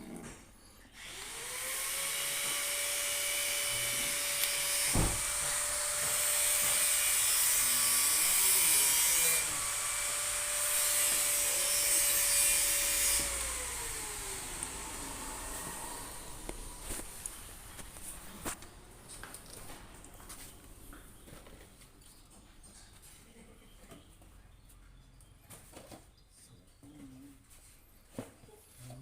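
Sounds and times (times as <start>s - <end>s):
machine whine: 9.6s - 17.7s.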